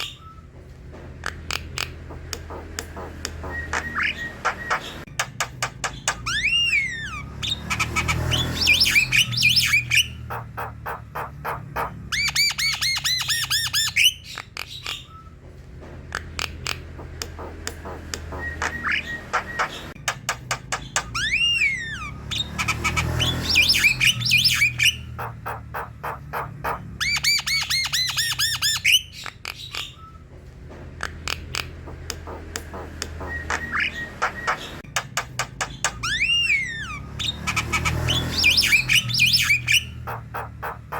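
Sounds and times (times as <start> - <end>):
bird song clicks and whistles: 1.2 - 10.2, 16.1 - 25.0, 31.0 - 40.0.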